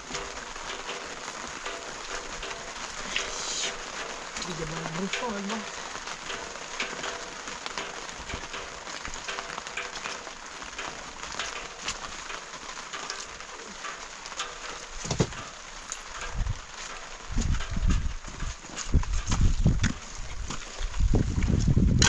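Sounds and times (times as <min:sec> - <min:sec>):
rain pattering: 0:00.0 - 0:22.0.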